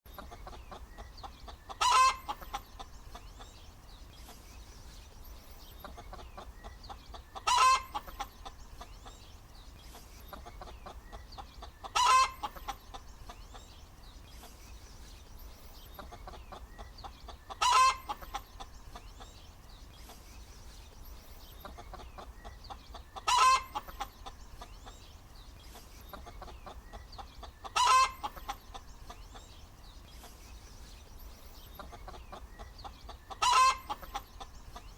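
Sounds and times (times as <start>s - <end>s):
hen clucking: 0.1s - 3.6s, 5.6s - 9.3s, 10.2s - 13.8s, 15.8s - 19.4s, 21.5s - 29.6s, 31.6s - 34.9s
hen cackling: 0.2s - 2.9s, 5.8s - 8.5s, 10.3s - 13.0s, 16.0s - 19.0s, 21.6s - 24.3s, 26.1s - 29.3s, 31.8s - 34.8s.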